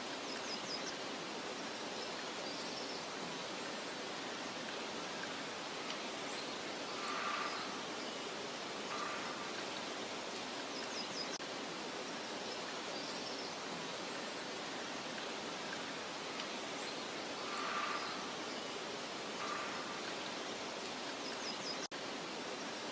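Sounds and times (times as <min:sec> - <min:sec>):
meadow ambience hiss: 0:00.0 - 0:22.9
faint short bird calls: 0:08.9 - 0:09.8, 0:19.4 - 0:20.2.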